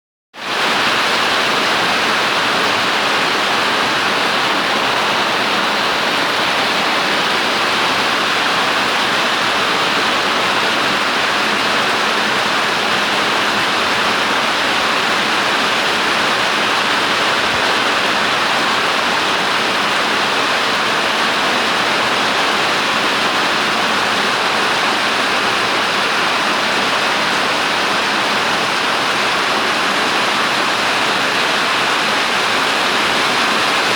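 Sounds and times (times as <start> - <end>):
heavy rain falling: 0.4 - 33.9.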